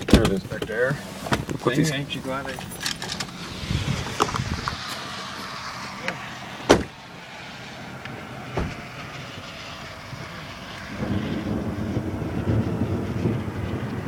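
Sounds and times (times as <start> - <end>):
car door slamming: 0.0 - 1.5, 6.6 - 7.0, 8.5 - 8.9.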